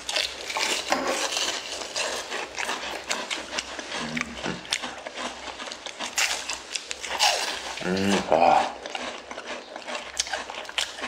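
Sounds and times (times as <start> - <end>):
crunching and chewing fried food: 0.0 - 11.0.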